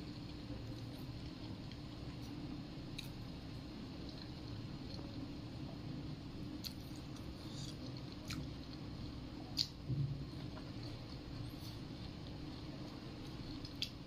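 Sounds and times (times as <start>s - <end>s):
person chewing wetly: 6.5s - 14.0s.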